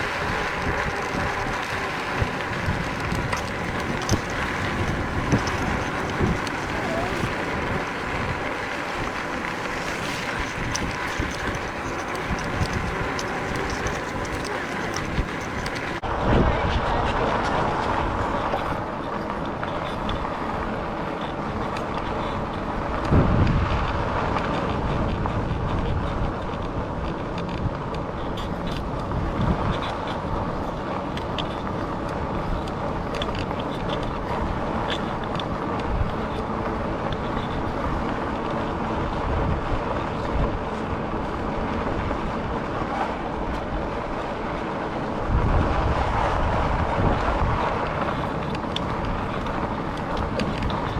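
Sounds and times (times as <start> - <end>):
faint motor hum: 0.0 - 16.0
e-bike tyre and wind rush: 0.0 - 50.9.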